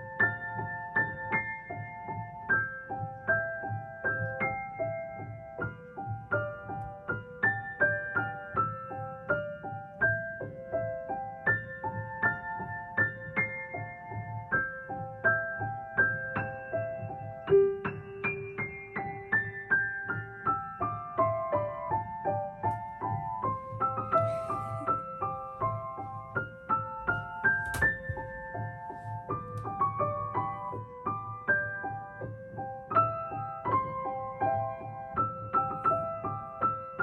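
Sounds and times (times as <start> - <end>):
solo piano music: 0.0 - 37.0.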